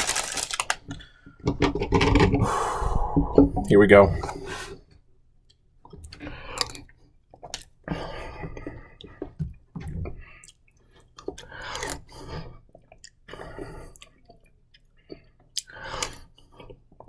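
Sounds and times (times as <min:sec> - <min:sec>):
person chewing wetly: 0:05.9 - 0:09.4, 0:10.0 - 0:17.0.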